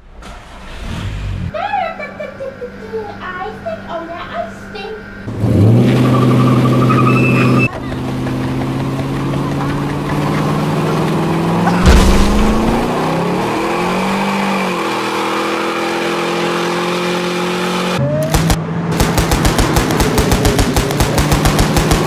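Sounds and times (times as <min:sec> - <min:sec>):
engine running: 0:07.7 - 0:14.2
heavy thud: 0:11.7 - 0:13.0
machine-gun fire: 0:11.8 - 0:13.0, 0:18.4 - 0:22.0.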